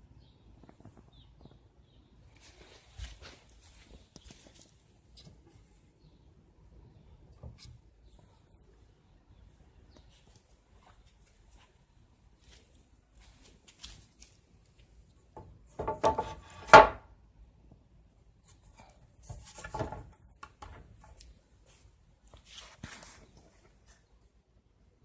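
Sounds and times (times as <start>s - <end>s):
knocks and scraping clatter: 15.8s - 17.0s.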